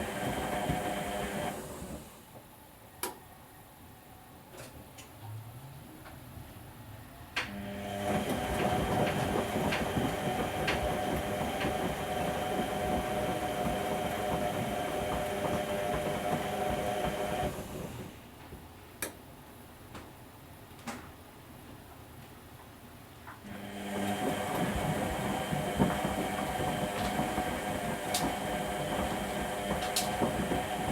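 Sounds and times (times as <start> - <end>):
washing machine motor whine: 0.0 - 2.3, 7.4 - 18.3, 23.4 - 30.9.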